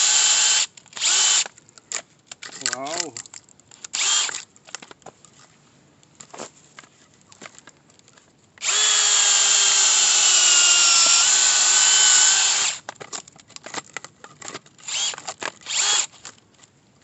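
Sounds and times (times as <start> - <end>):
power drill motor whine: 0.0 - 1.5, 4.0 - 4.3, 8.6 - 12.8, 14.8 - 16.1.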